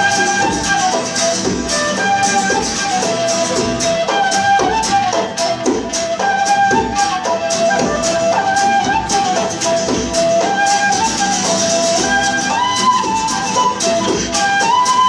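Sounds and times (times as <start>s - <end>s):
band playing folk music: 0.0s - 15.0s
percussion beat: 0.0s - 15.0s.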